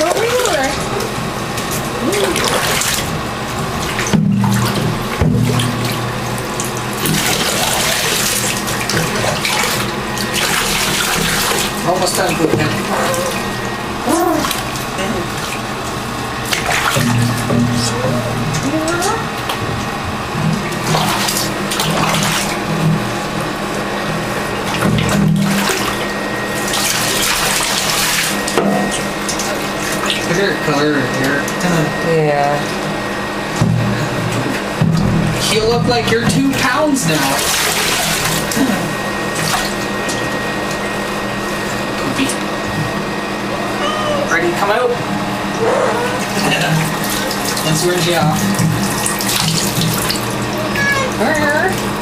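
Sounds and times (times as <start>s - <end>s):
tap water running and splashing: 0.0s - 43.0s, 45.4s - 52.0s
tap water splashing into bath: 1.6s - 12.8s, 14.4s - 17.8s, 46.2s - 51.9s.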